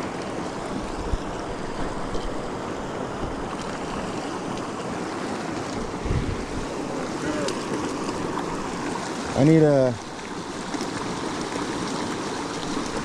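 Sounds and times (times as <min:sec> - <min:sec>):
river water rushing: 0:00.0 - 0:13.0
wind buffeting microphone: 0:00.7 - 0:02.5, 0:05.8 - 0:08.8.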